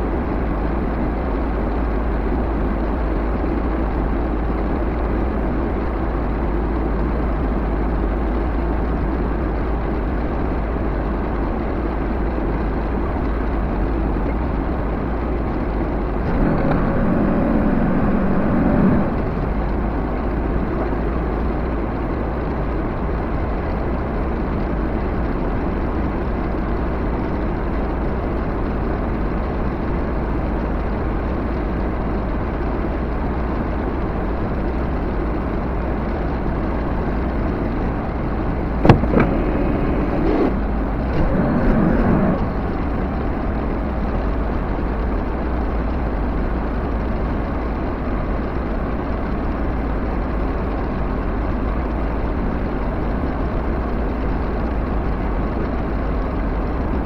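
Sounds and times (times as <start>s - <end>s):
backhoe engine running: 0.1s - 30.7s, 34.5s - 46.4s
brief clatter: 16.2s - 19.5s, 38.8s - 42.8s.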